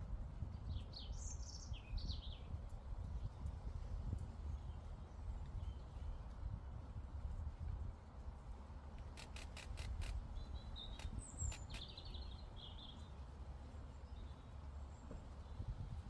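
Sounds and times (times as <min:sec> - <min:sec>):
sharp clicks: 0:09.0 - 0:10.2, 0:10.8 - 0:12.0.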